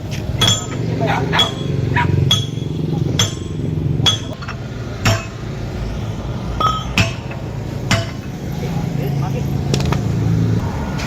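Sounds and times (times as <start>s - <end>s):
hammer striking steel: 0.1s - 5.5s, 6.6s - 8.4s.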